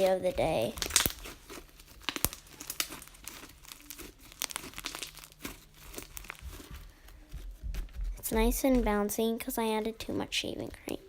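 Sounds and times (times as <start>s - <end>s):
slime crackling and popping: 0.0s - 6.9s.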